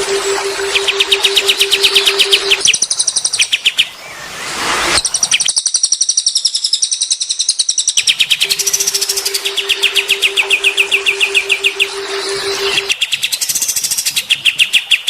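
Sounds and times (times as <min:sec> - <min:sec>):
steady low hum: 0:00.0 - 0:02.6, 0:08.4 - 0:12.9
songbird chirps and trills: 0:00.0 - 0:04.3, 0:05.0 - 0:15.0.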